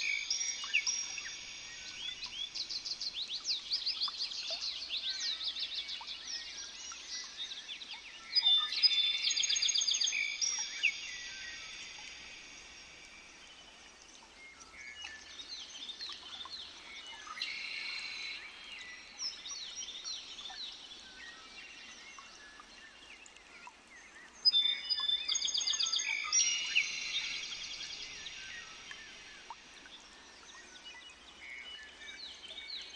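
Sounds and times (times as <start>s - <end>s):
soft bird chirps and calls: 0.0s - 12.9s
bird song with trills and whistles: 0.0s - 32.9s.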